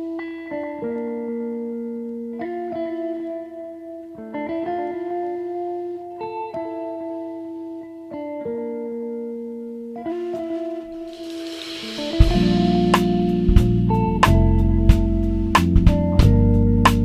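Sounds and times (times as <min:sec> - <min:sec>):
plucked string music: 0:10.0 - 0:17.0.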